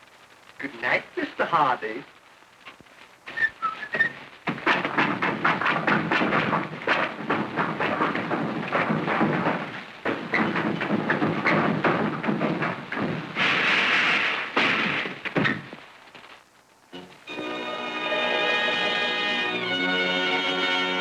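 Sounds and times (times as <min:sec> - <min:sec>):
thuds and crashes: 0:04.5 - 0:15.8.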